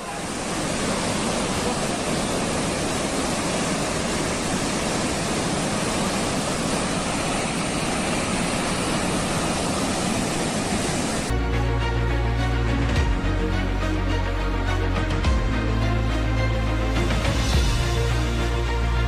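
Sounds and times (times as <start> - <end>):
water rushing: 0.0 - 19.0
music: 11.3 - 19.0.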